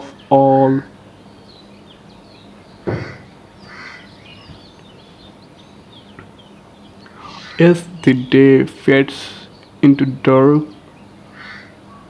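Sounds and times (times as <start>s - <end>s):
ambient hiss: 0.0s - 12.0s
small birds chirping: 0.0s - 12.0s
loud rough bird call: 1.7s - 5.3s, 6.0s - 8.0s, 11.1s - 12.0s.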